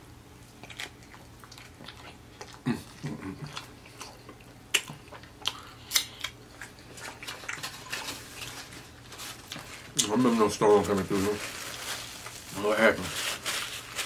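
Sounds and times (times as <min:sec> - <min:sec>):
chewing with smacking mouth sounds: 0:00.4 - 0:08.8.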